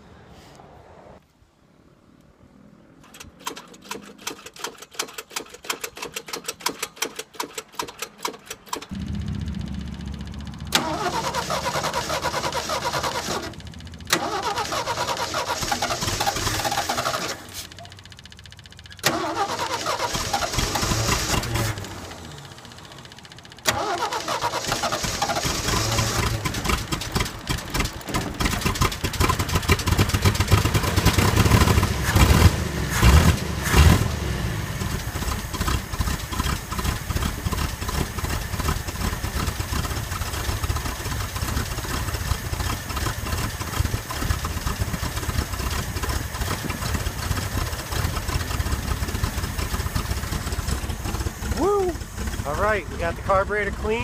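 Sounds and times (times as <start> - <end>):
car engine cranking by starter: 3.0 - 54.0
car engine running and revving: 8.9 - 14.2, 25.6 - 54.0
man talking: 51.6 - 54.0.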